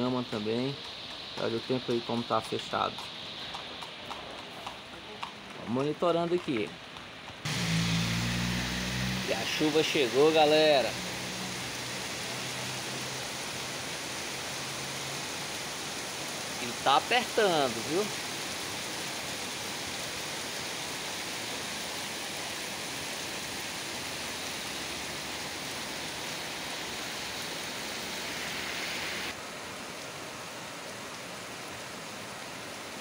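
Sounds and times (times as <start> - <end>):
heavy rain falling: 7.5 - 33.0.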